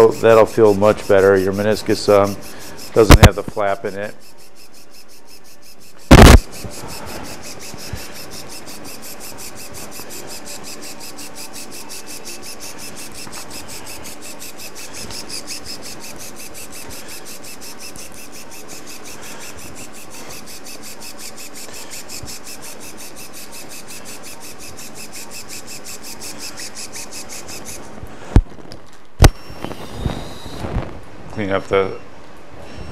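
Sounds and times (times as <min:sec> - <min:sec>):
surgical shaver grinding: 0:00.0 - 0:28.0, 0:29.4 - 0:30.8
sharp click: 0:04.2 - 0:13.7.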